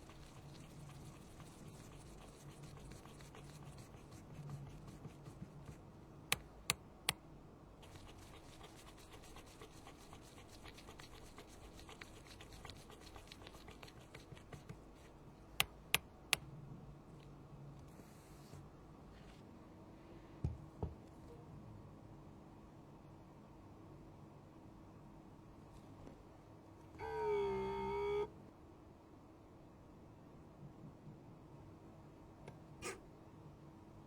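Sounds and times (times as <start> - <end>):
small tools scratching on phone: 0.0 - 5.8, 7.8 - 15.1.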